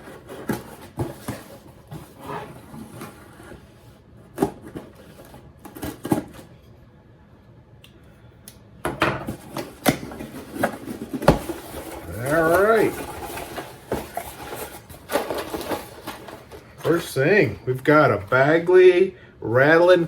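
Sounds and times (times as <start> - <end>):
cardboard and plastic rustling: 0.0 - 6.6, 9.2 - 18.9
packaging knocks and clicks: 9.3 - 17.1.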